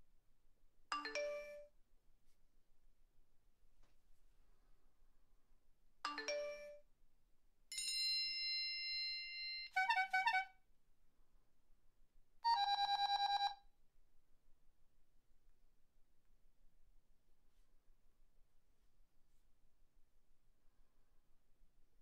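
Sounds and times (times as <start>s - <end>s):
multi-note ringtone: 1.0s - 1.7s, 6.1s - 6.8s
phone alert chime: 1.0s - 1.7s.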